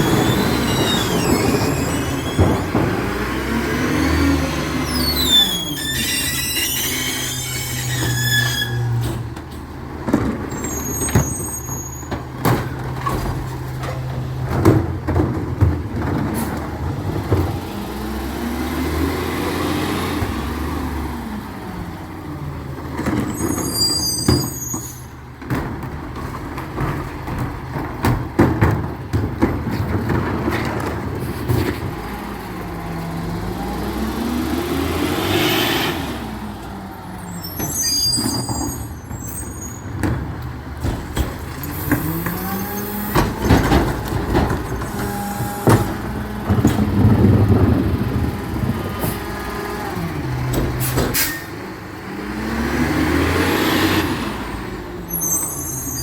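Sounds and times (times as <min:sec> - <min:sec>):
short high squeals: 0:00.0 - 0:02.7, 0:04.1 - 0:09.1, 0:10.5 - 0:12.1, 0:23.3 - 0:25.1, 0:37.2 - 0:39.9, 0:55.1 - 0:56.0
clanks and knocks: 0:00.0 - 0:03.6, 0:05.9 - 0:17.7, 0:24.2 - 0:32.0, 0:39.8 - 0:49.2, 0:50.4 - 0:51.4
truck engine running: 0:38.8 - 0:53.6.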